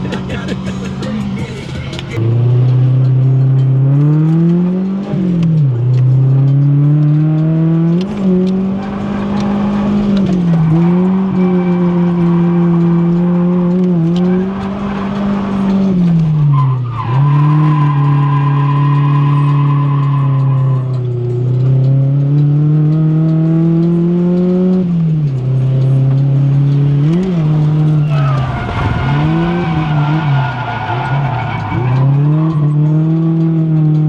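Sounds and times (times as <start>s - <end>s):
car engine revving hard: 0.0s - 34.0s
tyre squeal: 8.8s - 13.1s, 27.1s - 32.9s.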